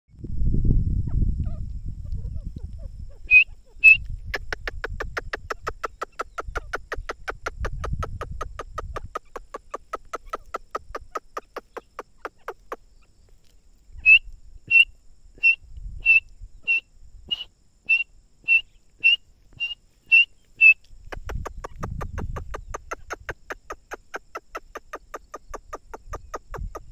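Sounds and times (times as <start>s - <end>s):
francolin whistled notes: 3.3s - 4.1s, 14.0s - 20.8s.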